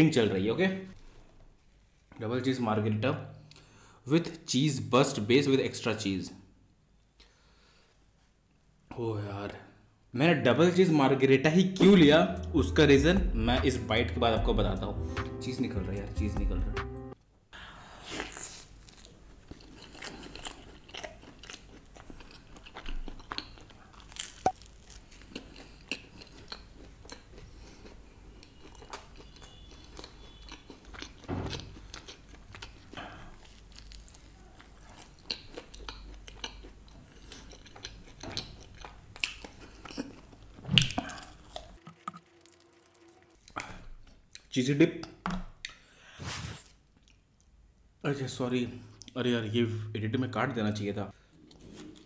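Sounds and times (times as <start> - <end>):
wet chewing: 18.2 - 44.5.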